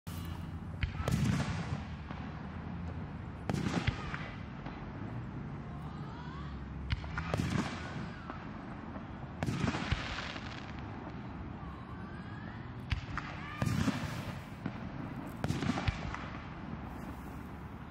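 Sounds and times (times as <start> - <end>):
firework shells booming: 12.9 - 17.5.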